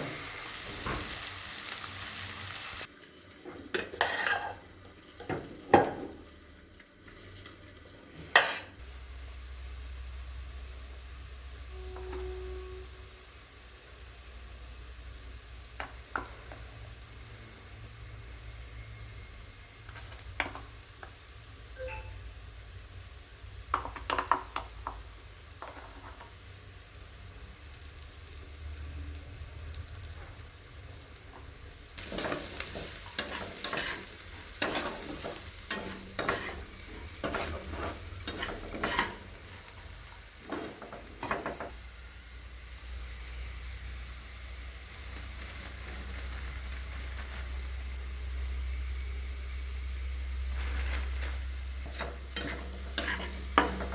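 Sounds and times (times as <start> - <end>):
rice sizzling in a pan: 0.0 - 53.9
spatula scraping and knocking pan: 3.7 - 4.6, 32.0 - 41.8, 51.8 - 53.9.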